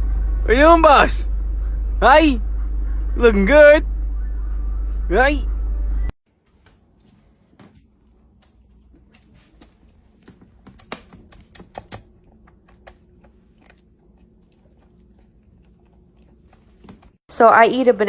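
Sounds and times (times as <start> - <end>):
low background hum: 0.0 - 18.0
small clicks and taps: 8.4 - 13.0.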